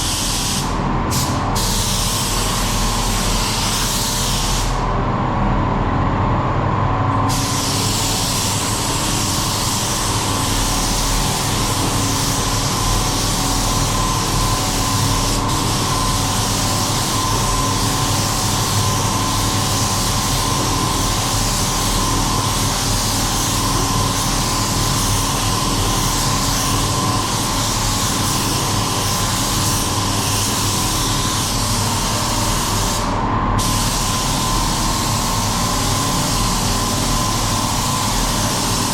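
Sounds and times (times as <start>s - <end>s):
paint spray gun hissing: 7.3s - 21.9s.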